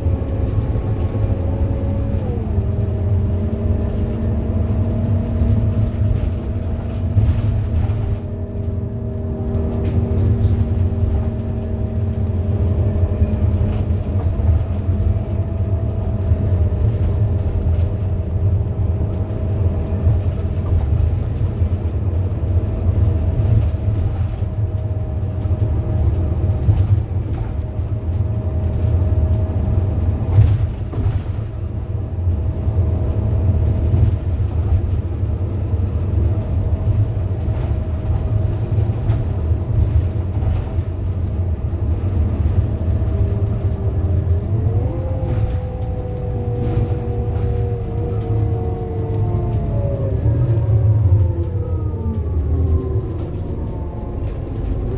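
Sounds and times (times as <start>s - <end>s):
bus diesel engine droning: 0.0s - 54.9s
steady whining tones: 42.7s - 54.9s.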